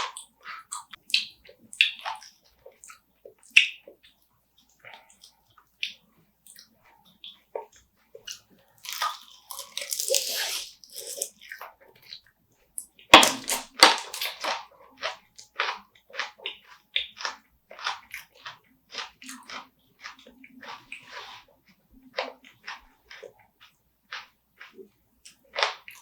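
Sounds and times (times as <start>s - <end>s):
wet mouth sounds: 0.0s - 12.3s
crunchy chewing: 7.3s - 12.3s.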